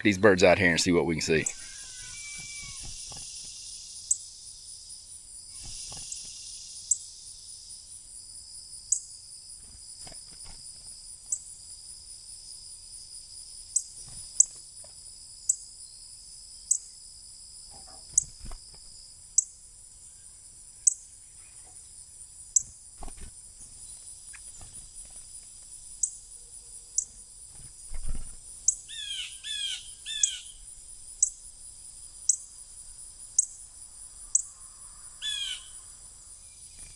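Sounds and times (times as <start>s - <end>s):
insects droning: 0.0s - 36.9s
bird chip notes: 0.2s - 2.8s.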